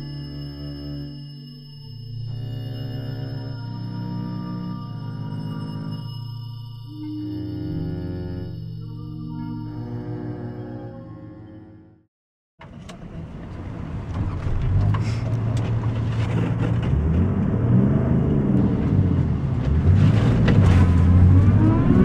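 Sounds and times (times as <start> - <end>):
music: 0.0 - 12.1.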